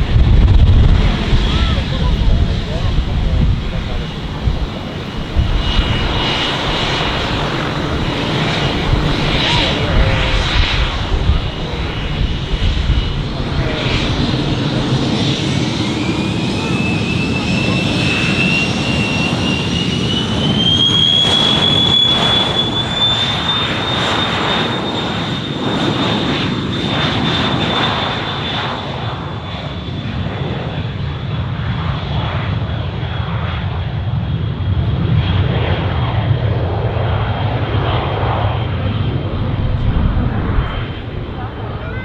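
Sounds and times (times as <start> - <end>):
low engine rumble: 0.0 - 19.4, 37.4 - 42.0
jet engine whine: 0.0 - 42.0.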